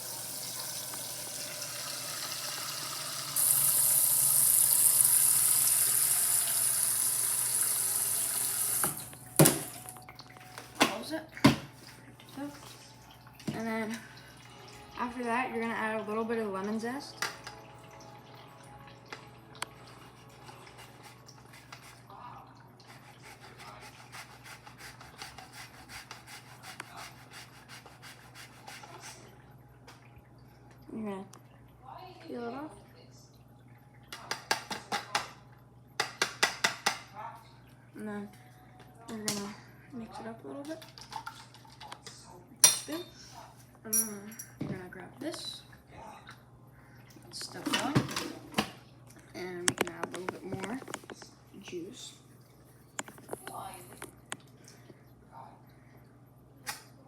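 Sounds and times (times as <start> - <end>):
tap water running into container: 0.0 - 14.7, 40.7 - 42.0.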